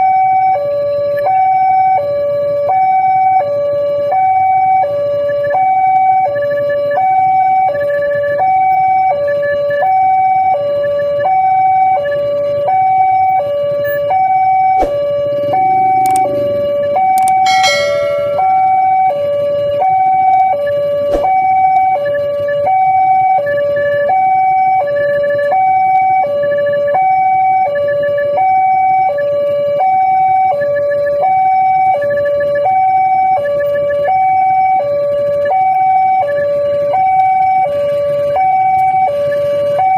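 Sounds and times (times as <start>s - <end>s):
two-tone level crossing alarm: 0.0s - 39.9s
low road rumble: 12.4s - 23.3s.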